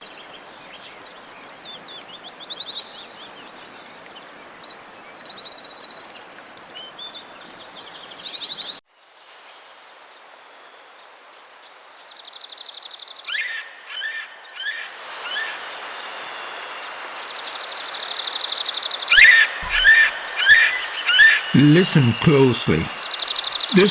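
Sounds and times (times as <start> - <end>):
steady outdoor hiss: 19.1 - 23.9
buzzy bird trills: 19.2 - 21.6
songbirds chirping and singing: 19.2 - 22.9.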